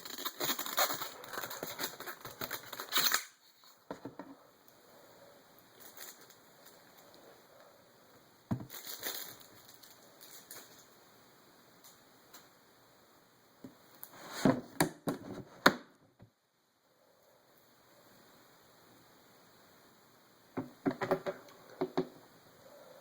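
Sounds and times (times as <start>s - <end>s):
packaging crinkling and rustling: 0.0s - 3.8s, 5.8s - 7.1s, 8.5s - 10.9s.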